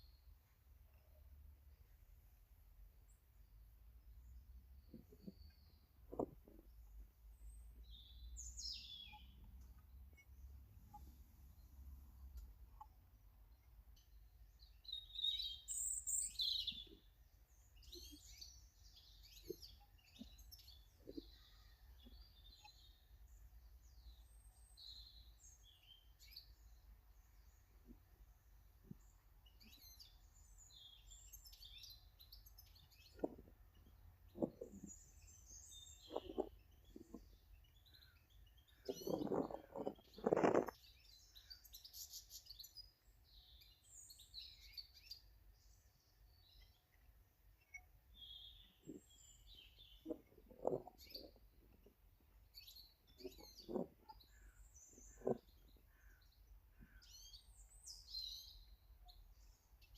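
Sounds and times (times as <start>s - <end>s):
garden birds chirping: 0.0s - 59.9s
soft knocks and taps: 6.1s - 6.7s.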